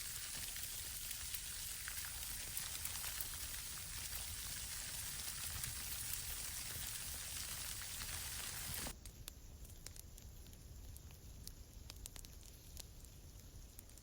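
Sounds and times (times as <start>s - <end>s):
rain pattering: 0.0s - 8.9s.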